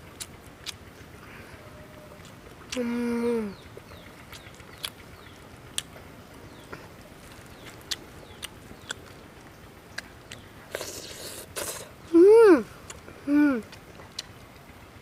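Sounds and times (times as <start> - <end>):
mouth clicks and smacks chewing: 3.8 - 11.9, 13.7 - 14.4
meat tearing rustle: 7.1 - 8.2.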